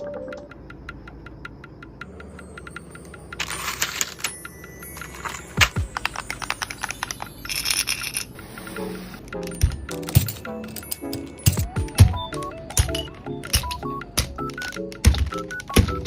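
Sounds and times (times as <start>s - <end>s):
clicks and taps of plastic items: 5.0s - 7.5s, 9.3s - 16.0s.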